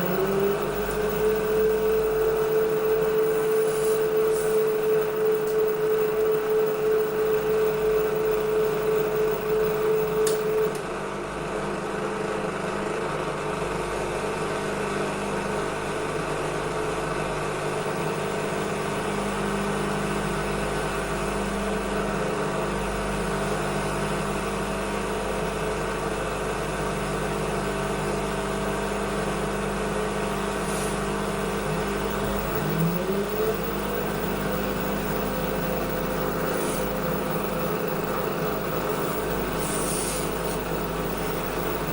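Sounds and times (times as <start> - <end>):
motor whine: 0.0 - 10.9, 27.4 - 41.9
washing machine humming: 0.0 - 41.9.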